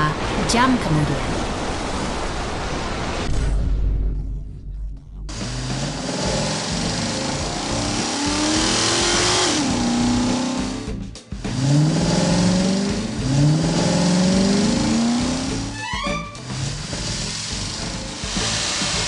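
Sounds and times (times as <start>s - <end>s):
car engine revving: 5.3s - 15.8s, 16.4s - 19.0s
steady hiss: 16.8s - 19.0s.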